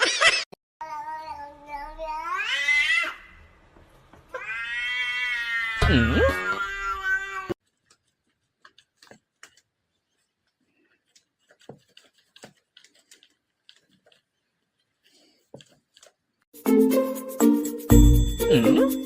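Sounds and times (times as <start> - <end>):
cat meowing: 4.3 - 7.6
faint clicks and taps: 7.6 - 16.2.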